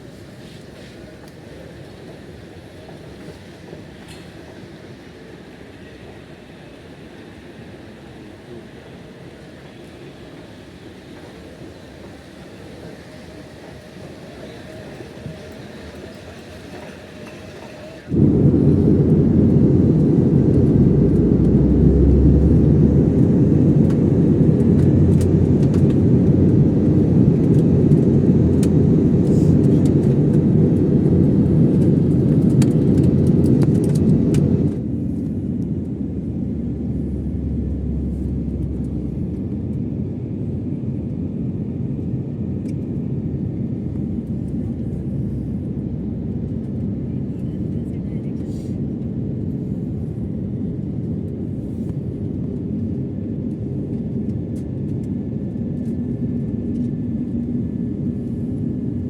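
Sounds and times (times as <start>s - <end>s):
vehicle interior rumble: 18.1s - 41.3s.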